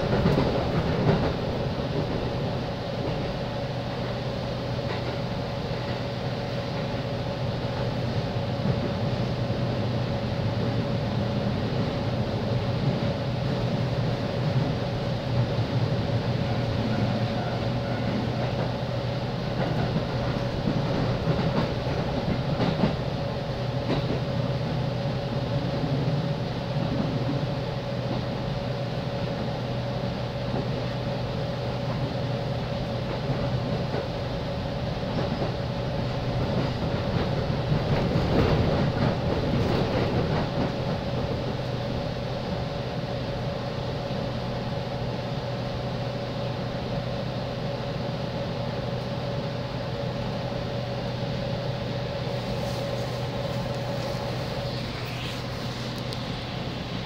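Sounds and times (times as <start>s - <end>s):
wheels rumbling on rail: 0.0s - 57.0s
steady electrical hum: 52.2s - 57.0s.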